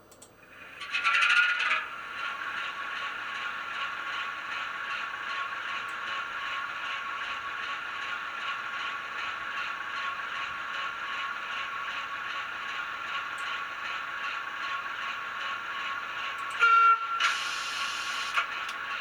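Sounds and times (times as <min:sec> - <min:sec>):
model diesel engine sound: 0:00.6 - 0:19.0
short horn blast: 0:16.6 - 0:17.7.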